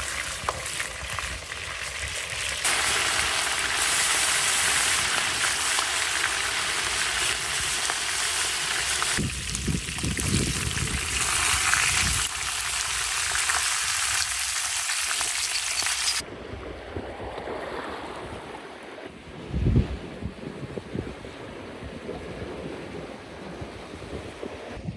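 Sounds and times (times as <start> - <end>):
food sizzling in a pan: 0.0 - 16.2
outdoor noise: 0.0 - 22.3.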